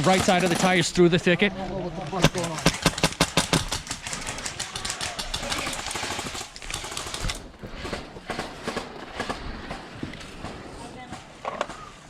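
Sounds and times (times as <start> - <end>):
airsoft guns firing: 0.0 - 0.9, 2.2 - 10.6.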